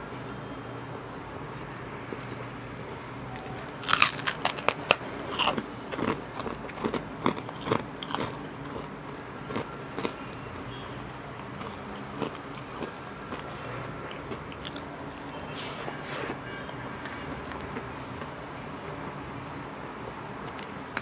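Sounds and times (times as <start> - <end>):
crunching crispy pork crackling: 3.3 - 16.3.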